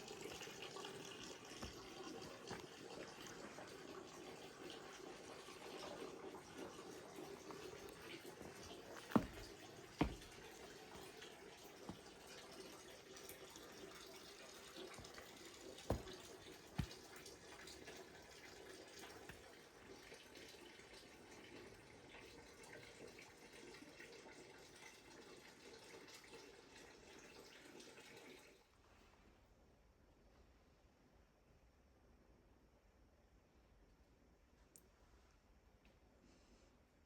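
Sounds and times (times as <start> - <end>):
faint rain with drips: 0.0 - 29.0
sharp taps of drops: 9.1 - 10.4, 15.9 - 17.0.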